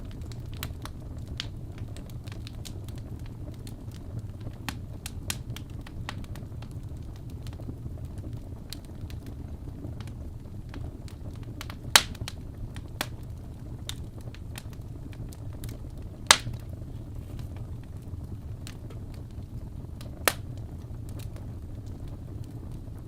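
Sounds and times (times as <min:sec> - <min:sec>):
fire crackling in fireplace: 0:00.0 - 0:23.0
sharp loud pops of fire: 0:11.6 - 0:12.4, 0:16.2 - 0:16.7, 0:20.2 - 0:20.5.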